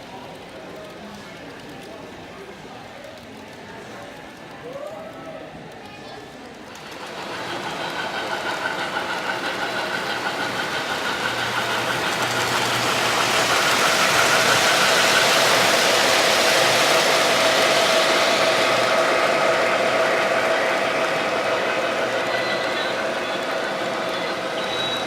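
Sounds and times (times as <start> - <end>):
train running past: 6.6 - 25.0.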